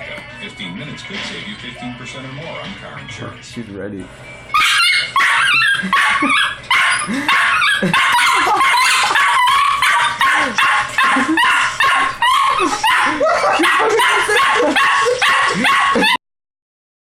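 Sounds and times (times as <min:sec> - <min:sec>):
dog barking and yapping: 0:04.6 - 0:16.2.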